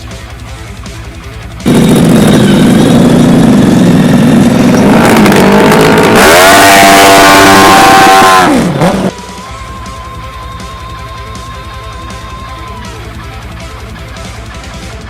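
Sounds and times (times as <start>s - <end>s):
dirt bike engine revving: 1.6s - 9.2s.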